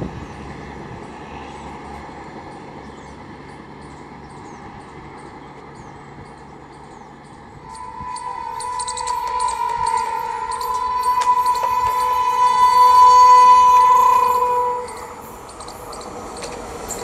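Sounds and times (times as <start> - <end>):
train rumble approaching: 0.0 - 17.0
steady high tone: 7.6 - 17.0.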